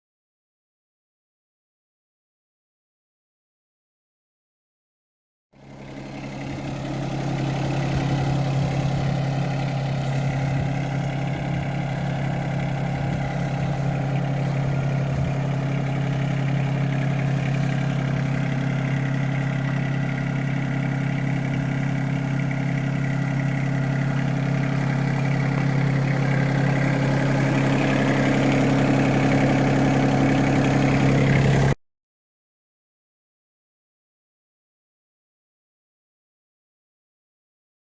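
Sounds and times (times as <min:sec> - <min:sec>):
tractor diesel engine running: 0:05.6 - 0:31.8.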